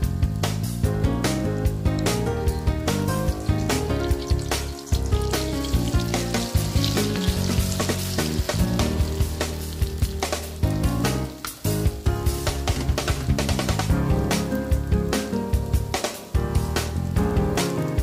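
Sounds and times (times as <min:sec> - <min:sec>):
background music: 0:00.0 - 0:18.0
oil sizzling around egg: 0:01.6 - 0:13.9.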